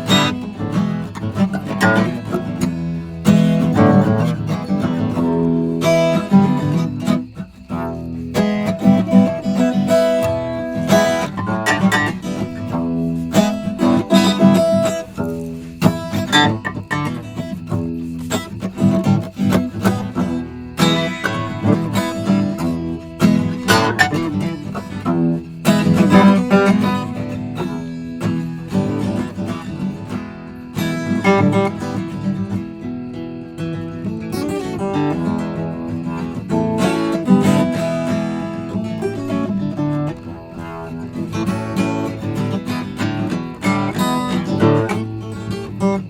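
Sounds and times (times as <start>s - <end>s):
acoustic guitar strummed and picked: 0.0s - 46.0s.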